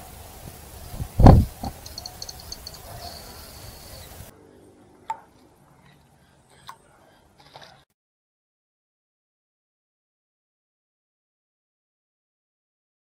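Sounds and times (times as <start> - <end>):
faint clicks: 1.6 - 4.2
small bird chips: 1.6 - 4.3.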